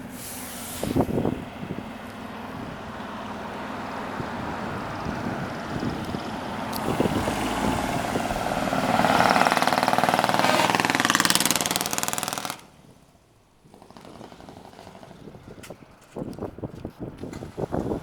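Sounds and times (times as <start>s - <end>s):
faint outdoor background noise: 0.0s - 18.0s
truck engine with loud exhaust: 0.0s - 18.0s.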